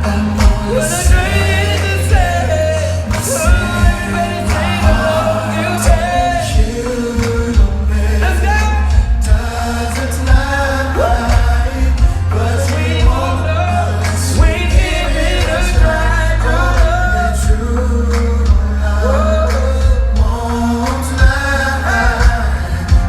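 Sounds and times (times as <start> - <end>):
heavy bass line: 0.0 - 23.0
person singing: 0.0 - 23.0
steady drum beat: 0.0 - 23.0.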